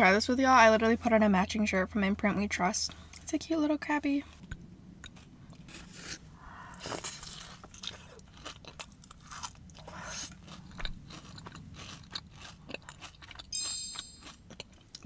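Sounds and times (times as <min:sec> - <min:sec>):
crunchy cookie chewing: 0:04.2 - 0:15.0.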